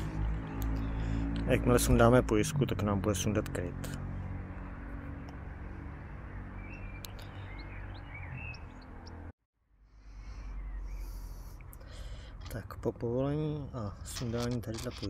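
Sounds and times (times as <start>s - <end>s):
bird chirps: 6.4s - 9.3s, 10.1s - 11.6s.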